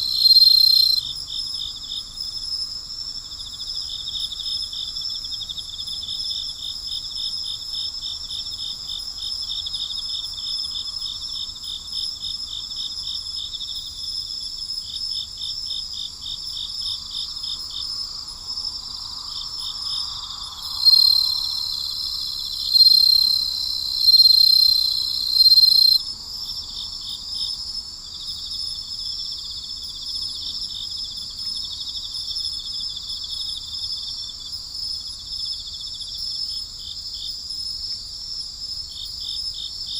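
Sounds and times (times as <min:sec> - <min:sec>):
loud high insect trill: 0:00.0 - 0:01.2, 0:16.6 - 0:26.9
crickets chirping: 0:00.0 - 0:39.9.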